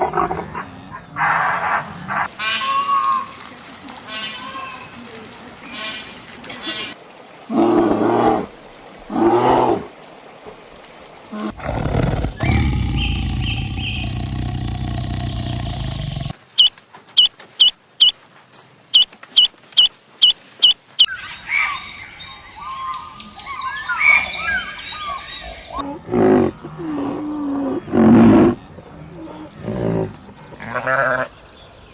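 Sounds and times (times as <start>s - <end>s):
roar-like animal call: 7.5s - 8.5s, 11.3s - 16.4s, 25.8s - 31.3s
jumble of higher animal calls: 11.4s - 16.7s
loud animal calls: 11.4s - 16.7s.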